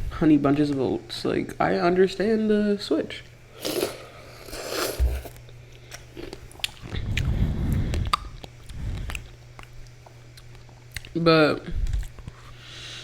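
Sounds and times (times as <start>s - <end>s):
chewing cereal: 3.6s - 11.2s.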